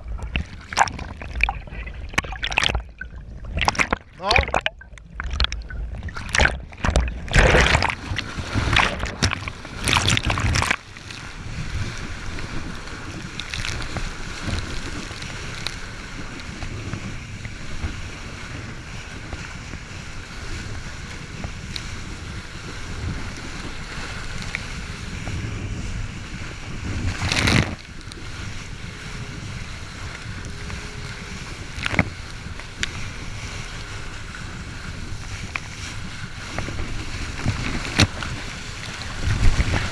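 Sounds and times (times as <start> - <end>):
jet ski engine running: 0.0 - 39.9
rushing water: 0.0 - 39.9
water splashing: 0.0 - 39.9
wind on microphone: 0.0 - 39.9.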